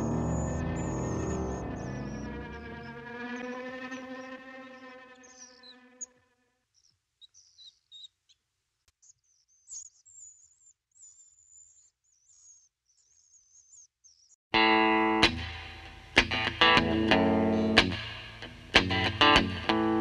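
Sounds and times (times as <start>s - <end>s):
held tone with overtones: 0.0s - 3.4s
small birds chirping: 0.0s - 14.4s, 16.2s - 20.0s.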